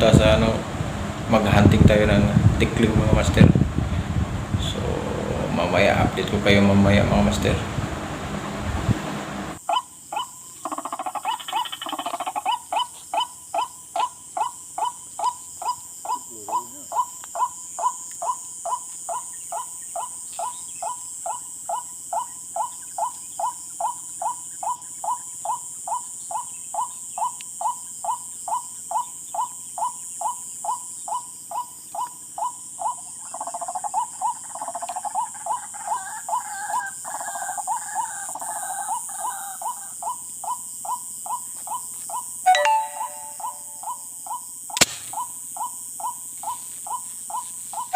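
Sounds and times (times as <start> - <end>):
rail bird calling: 9.6 - 47.9
ragged burst of bird calls: 44.7 - 47.9.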